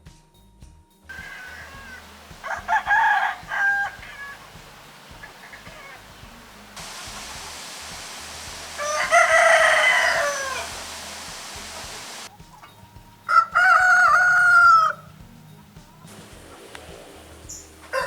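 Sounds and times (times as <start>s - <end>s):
rooster crowing: 1.1s - 12.3s, 13.3s - 15.1s, 17.5s - 18.0s
steady hiss: 1.1s - 12.3s, 16.1s - 18.0s.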